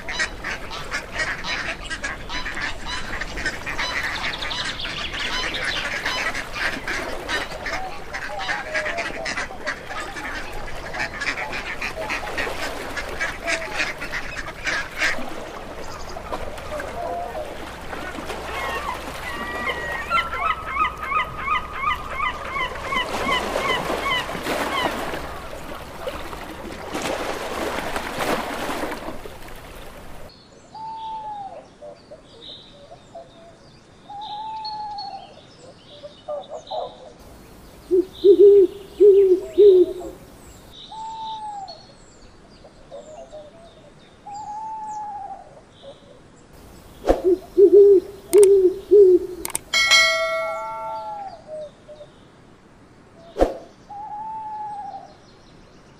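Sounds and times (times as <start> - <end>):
bird calling in a dense run: 0.0 - 31.6, 46.8 - 52.1
curved bird call notes: 37.9 - 40.2, 47.2 - 51.5
owl hooting: 37.9 - 40.2, 47.2 - 51.7.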